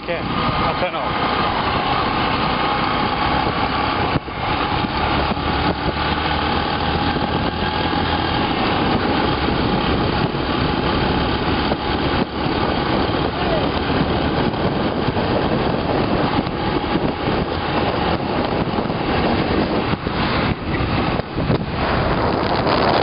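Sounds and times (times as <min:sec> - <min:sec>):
motorcycle engine and road noise: 0:00.0 - 0:23.0.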